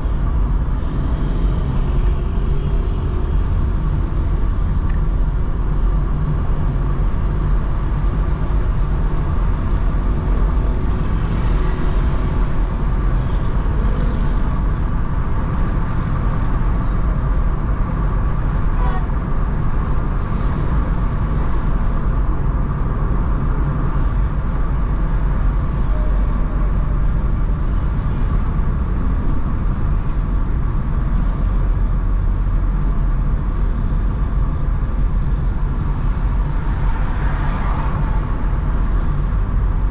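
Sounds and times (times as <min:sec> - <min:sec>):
car driving in traffic: 0:00.0 - 0:39.9.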